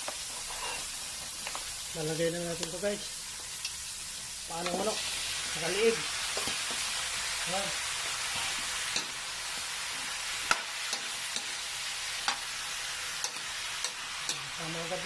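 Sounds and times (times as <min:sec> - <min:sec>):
meat sizzling in hot oil: 0:00.0 - 0:15.0
metal ladle scraping a wok: 0:00.3 - 0:00.9.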